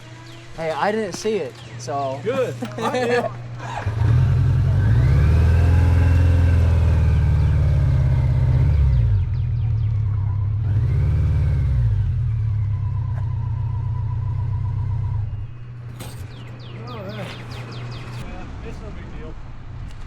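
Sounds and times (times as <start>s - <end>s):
motorcycle engine revving and idling: 0.0s - 18.2s.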